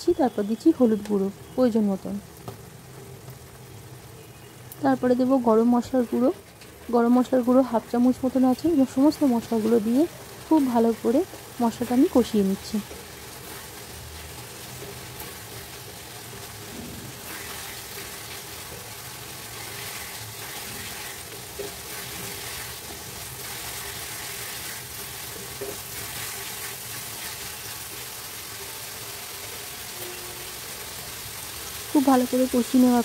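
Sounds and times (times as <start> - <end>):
food sizzling in oil: 0.0 - 33.0
spatula stirring and scraping: 12.8 - 28.1.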